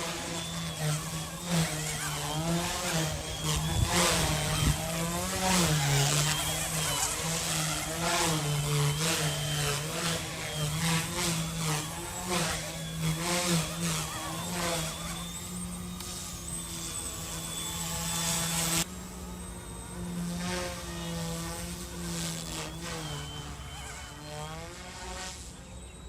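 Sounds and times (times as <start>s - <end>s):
rc helicopter motor buzzing: 0.0s - 26.0s.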